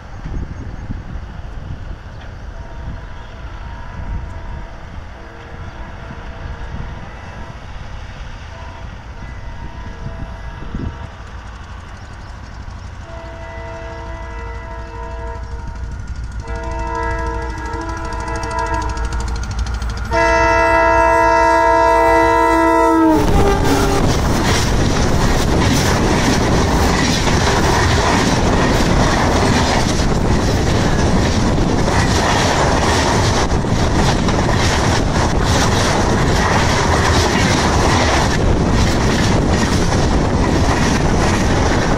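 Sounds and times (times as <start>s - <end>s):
locomotive air horn blasts: 8.5s - 11.0s, 13.0s - 15.8s, 16.4s - 19.5s, 20.1s - 24.2s
wheels clacking on rails: 10.6s - 41.9s.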